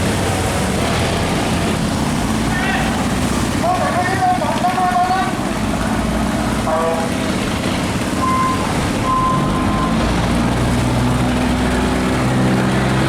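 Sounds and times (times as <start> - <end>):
boat diesel engines running: 0.0 - 13.0
short high tones: 8.2 - 9.9.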